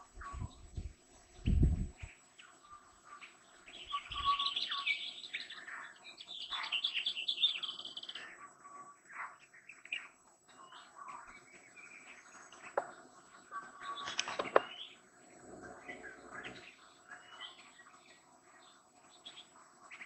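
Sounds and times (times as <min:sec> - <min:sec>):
high chirping bird trills: 0:00.0 - 0:15.1
soft bird chirps and calls: 0:00.0 - 0:20.0.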